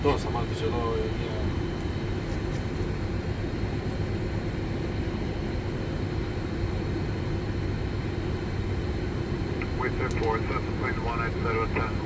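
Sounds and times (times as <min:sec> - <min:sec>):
cockpit engine drone: 0:08.7 - 0:12.0.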